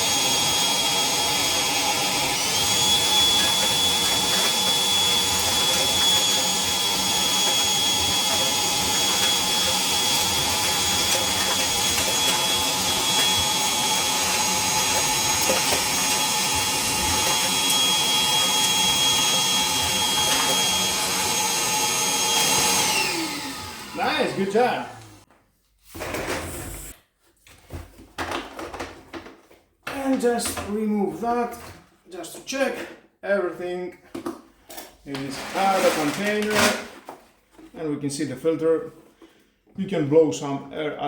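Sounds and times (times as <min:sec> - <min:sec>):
wet and dry vacuum running: 0:00.0 - 0:25.2, 0:35.1 - 0:36.8
vacuum sucking up debris: 0:00.1 - 0:25.2.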